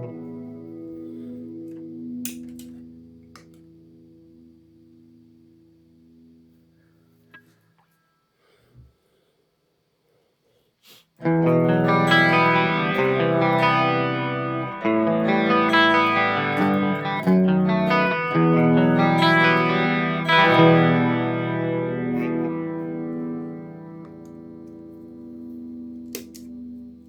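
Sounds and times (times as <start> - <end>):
electric guitar chords with chorus: 0.0 - 6.4, 11.2 - 27.0.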